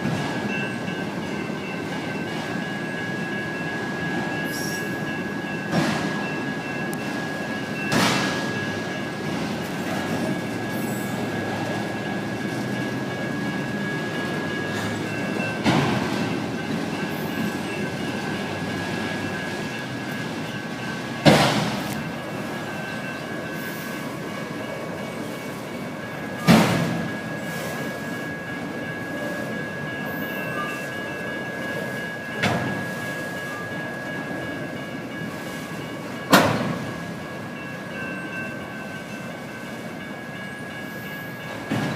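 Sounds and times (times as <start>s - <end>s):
crossing bells ringing: 0.0s - 41.9s
freight train wheels on rail: 0.0s - 41.9s
loud train clank: 0.0s - 41.9s.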